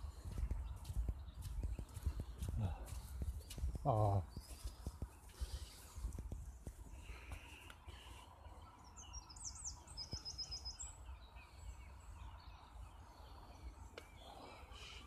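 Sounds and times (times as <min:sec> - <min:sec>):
wind rumble on microphone: 0:00.0 - 0:07.6
bird singing high phrase: 0:08.2 - 0:14.8.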